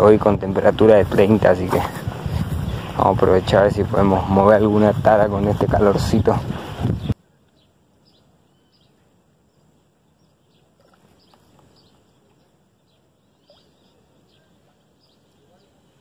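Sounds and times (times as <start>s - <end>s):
faint bird chirps: 7.0s - 16.0s
low background noise: 7.1s - 16.0s.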